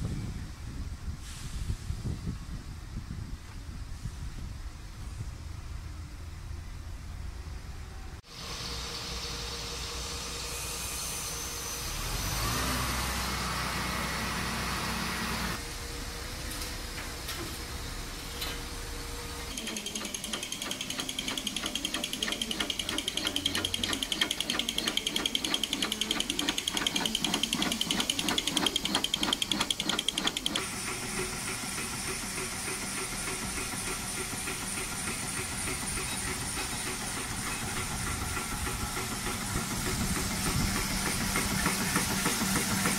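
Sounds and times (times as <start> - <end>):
line boring machine motor hum: 18.6 - 42.9
boring bar cutting steel: 19.5 - 31.5.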